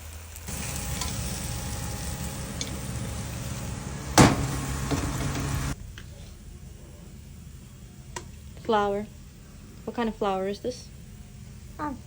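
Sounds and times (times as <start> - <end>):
spice paste sizzling in a pot: 0.0 - 12.0
sharp knock: 4.2 - 5.0.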